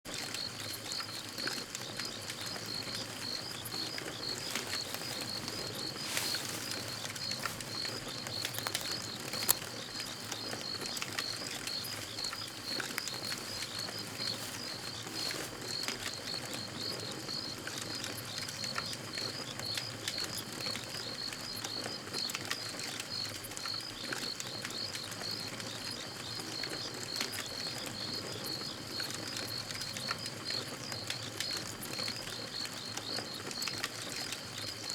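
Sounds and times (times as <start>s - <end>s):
campfire crackling and popping: 0.1s - 20.6s.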